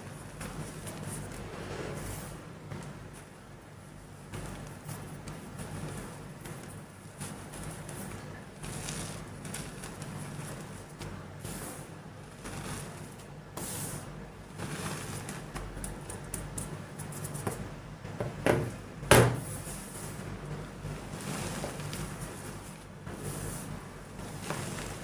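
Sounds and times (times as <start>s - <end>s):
chalk crumbling: 4.4s - 17.6s.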